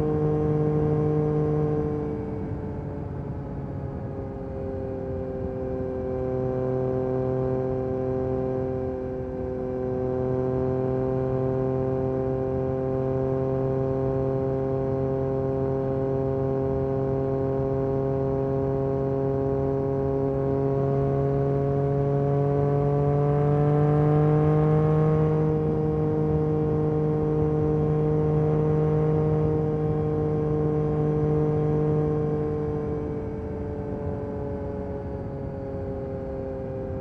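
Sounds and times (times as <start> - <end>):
motorcycle engine cruising: 0.0 - 37.0.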